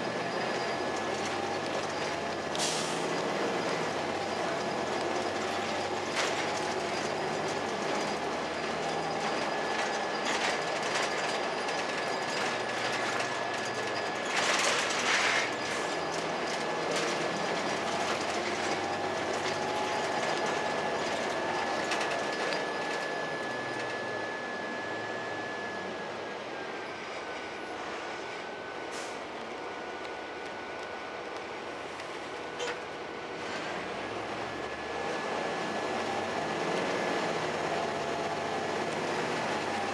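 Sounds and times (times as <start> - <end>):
bus diesel engine running: 0.0 - 39.9
steady high whine: 17.3 - 33.3.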